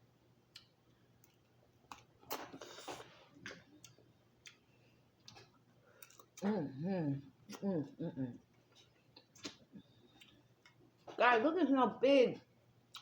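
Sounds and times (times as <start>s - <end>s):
soft clicks and mouth smacks: 9.2s - 9.6s.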